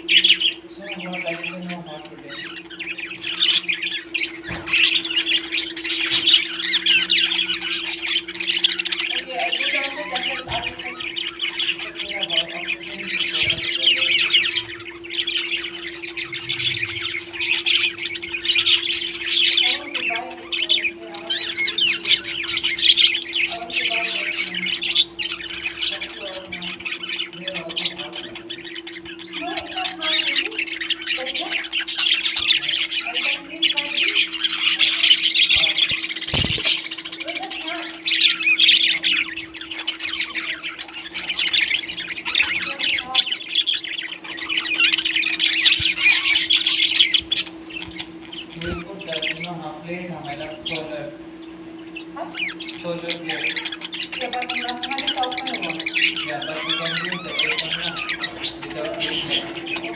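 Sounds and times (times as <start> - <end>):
parrots chattering: 0.0 - 59.9
steady low hum: 0.0 - 59.9.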